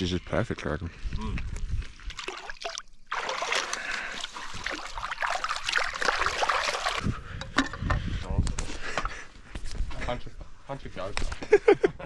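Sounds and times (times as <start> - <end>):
water trickling and splashing: 1.8 - 7.2.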